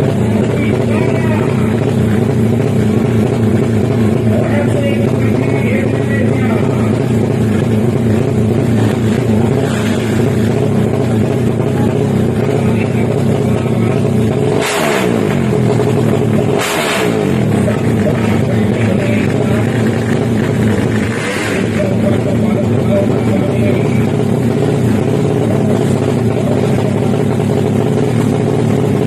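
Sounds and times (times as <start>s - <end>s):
motorcycle engines running steadily: 0.0s - 29.0s.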